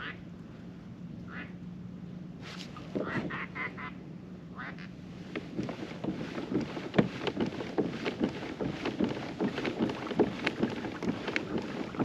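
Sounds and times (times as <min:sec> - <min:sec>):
paddle splashing water: 0:05.2 - 0:12.0.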